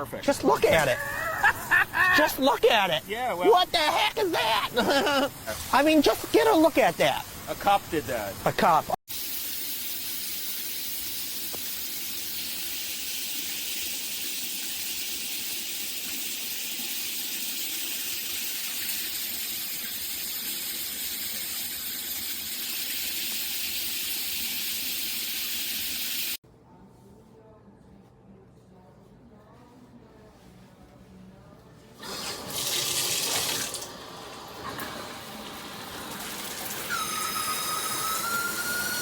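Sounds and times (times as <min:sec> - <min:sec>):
shower spraying water: 0:01.5 - 0:07.8, 0:09.1 - 0:26.4, 0:32.0 - 0:39.0.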